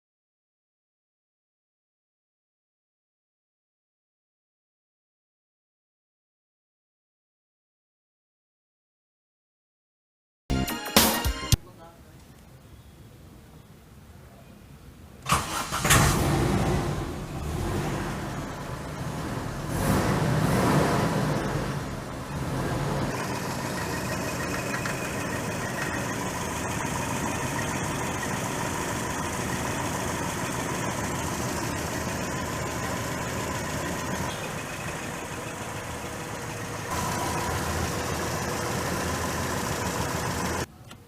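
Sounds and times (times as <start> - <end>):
car engine idling: 15.3 - 40.7.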